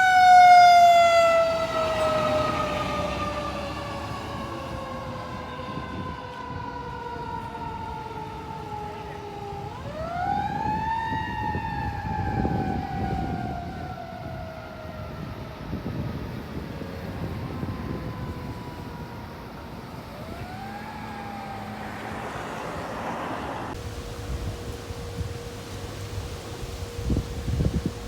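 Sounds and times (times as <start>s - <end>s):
fire truck siren wailing: 0.0s - 28.0s
truck engine rumble: 0.0s - 28.0s.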